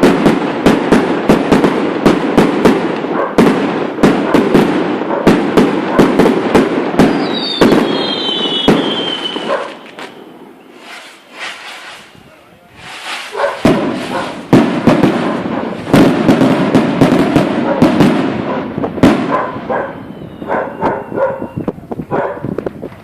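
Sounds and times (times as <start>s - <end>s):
firework crackling: 0.0s - 23.0s
firework rockets banging: 0.0s - 23.0s
descending firework whistle: 7.0s - 14.4s, 19.8s - 21.8s.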